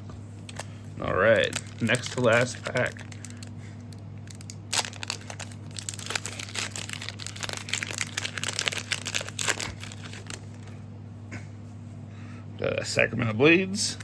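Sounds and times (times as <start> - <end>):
plastic wrapper tearing: 0.5 - 10.7
plastic wrapper crinkling: 0.5 - 10.8.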